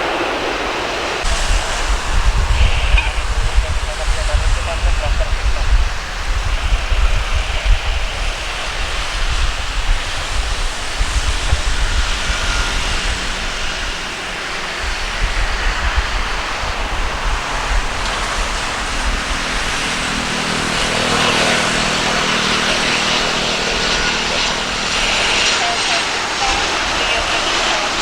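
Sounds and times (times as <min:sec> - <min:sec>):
jet airliner landing: 0:00.0 - 0:28.0
wind on microphone: 0:00.0 - 0:28.0.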